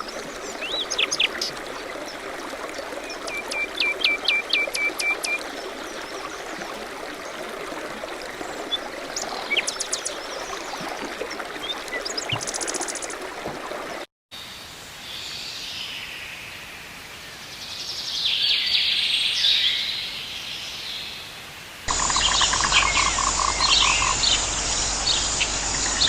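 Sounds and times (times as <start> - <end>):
songbirds chirping and trilling: 0.0 - 7.6, 21.9 - 26.0
stream running: 0.0 - 14.1, 21.9 - 26.0.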